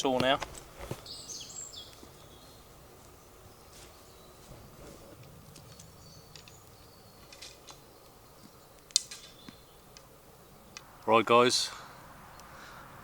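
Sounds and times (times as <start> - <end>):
faint high bird chirps: 1.0 - 4.6, 5.6 - 10.8.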